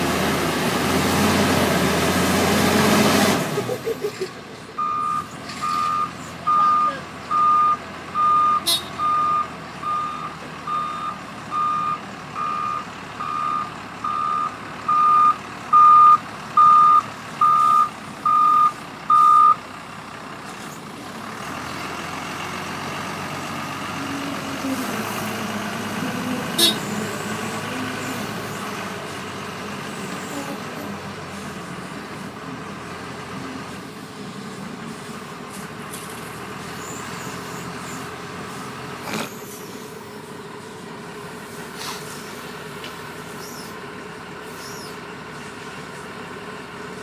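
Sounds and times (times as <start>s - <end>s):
heavy engine running: 0.0s - 47.0s
reversing alarm beeping: 4.8s - 19.6s.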